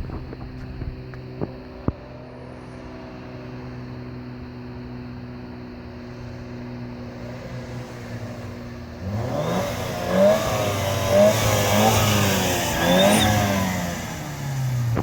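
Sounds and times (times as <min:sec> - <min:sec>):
car engine revving: 0:06.9 - 0:15.0
turbo whistle: 0:12.8 - 0:13.8.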